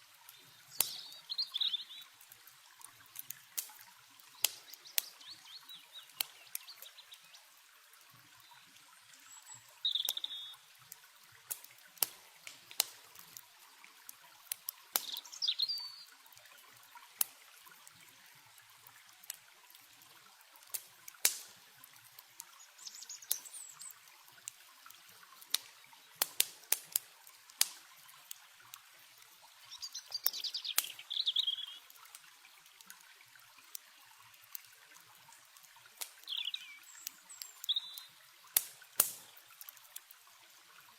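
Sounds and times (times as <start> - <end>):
campfire crackling and popping: 0.0 - 9.2, 9.8 - 40.9
bird chirping: 0.3 - 2.1, 9.3 - 10.6, 15.0 - 16.1, 22.6 - 24.0, 29.7 - 31.9, 36.2 - 38.1.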